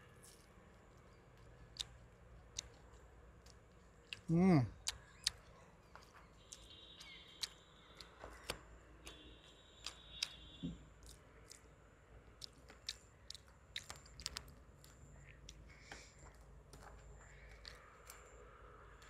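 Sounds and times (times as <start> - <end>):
chewing crisp fried fish: 0.2 - 8.6, 11.0 - 16.4.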